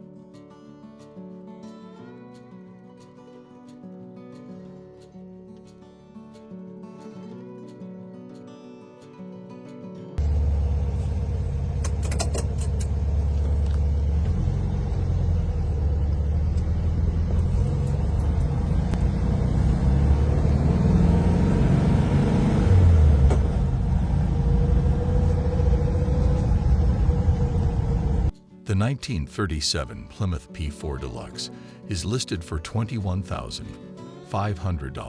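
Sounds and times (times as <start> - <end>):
car engine rumbling: 10.2 - 28.3.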